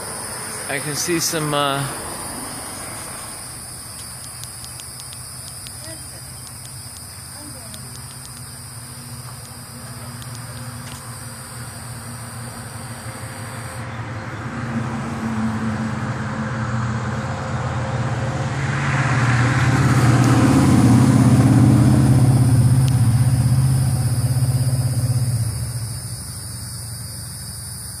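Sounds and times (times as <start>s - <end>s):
vehicle passing by: 0.0s - 3.8s, 12.0s - 25.9s.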